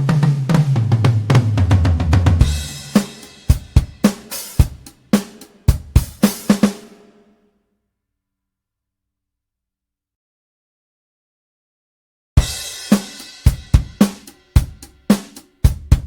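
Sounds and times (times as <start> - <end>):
tom drum fill: 0.0 - 7.2, 12.4 - 16.0
cymbal crash: 2.4 - 5.5.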